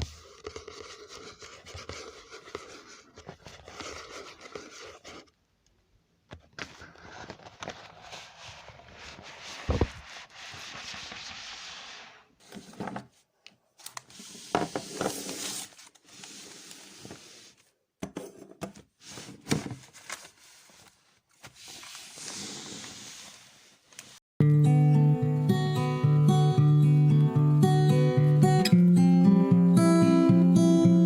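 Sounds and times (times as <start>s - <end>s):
scratching and rubbing: 0.0s - 5.3s, 6.6s - 12.8s.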